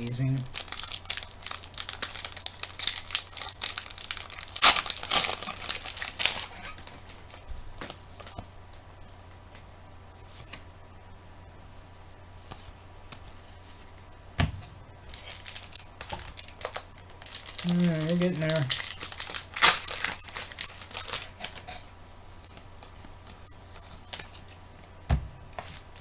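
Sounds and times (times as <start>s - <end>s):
wrapper tearing and crinkling: 0.4s - 7.4s, 15.1s - 21.7s
handling of cards: 15.1s - 26.0s
soft thump: 25.1s - 25.5s.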